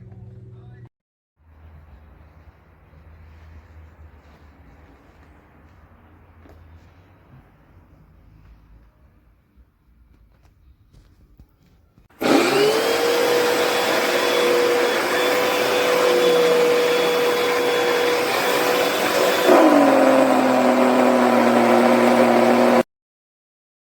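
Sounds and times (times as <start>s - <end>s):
carpet cleaner motor whining: 12.2s - 22.8s
rushing suction: 12.2s - 22.8s.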